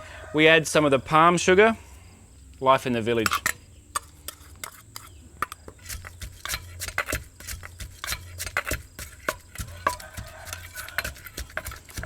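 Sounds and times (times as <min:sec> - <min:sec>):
pestle knocking in mortar: 0:03.3 - 0:12.0.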